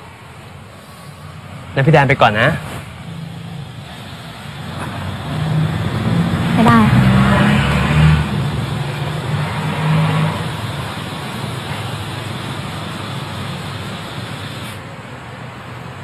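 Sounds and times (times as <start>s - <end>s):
car engine humming: 0.0s - 16.0s.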